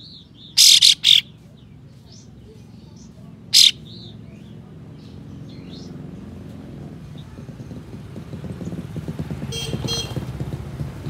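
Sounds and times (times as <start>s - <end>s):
bird harsh shot-like calls: 0.5s - 1.3s, 3.5s - 4.0s.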